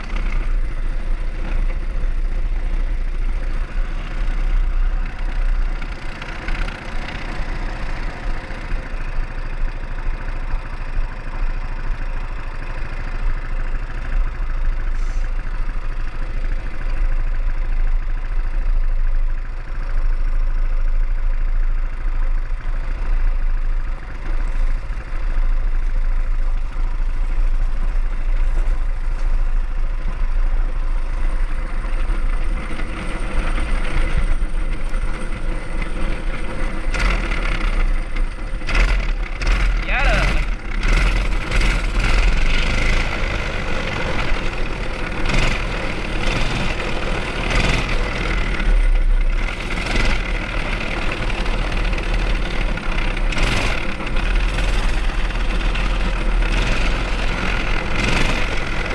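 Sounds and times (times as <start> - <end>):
small engine running: 24.2 - 58.9.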